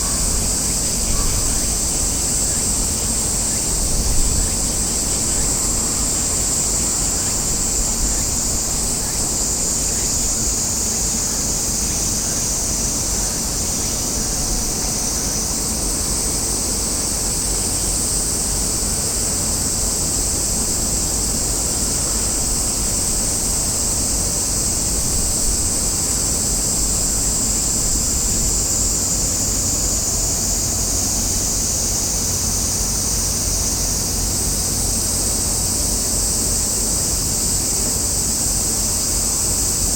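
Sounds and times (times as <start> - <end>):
wind rumble on microphone: 0.0 - 10.8
high-pitched shrill hiss: 0.0 - 39.9.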